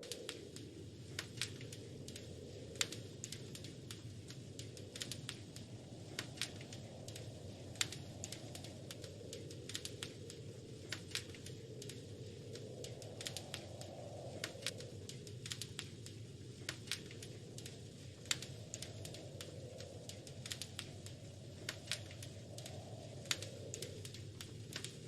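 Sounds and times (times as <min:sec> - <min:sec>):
low steady rush: 0:00.0 - 0:25.0
wood fire crackling: 0:00.0 - 0:25.0.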